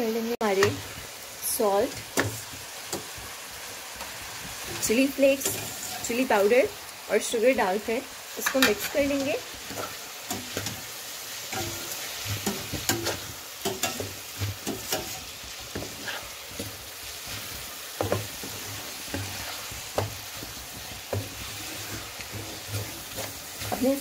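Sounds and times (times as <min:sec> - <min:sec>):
food sizzling in a pan: 0:00.0 - 0:24.0
wooden spatula scraping a pan: 0:04.0 - 0:06.6, 0:08.4 - 0:24.0.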